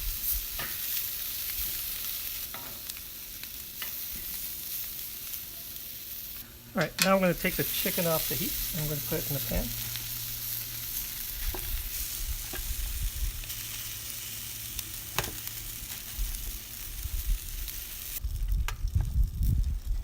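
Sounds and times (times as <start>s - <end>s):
chicken sizzling on a grill: 0.0s - 20.0s
low rumbling: 6.4s - 20.0s.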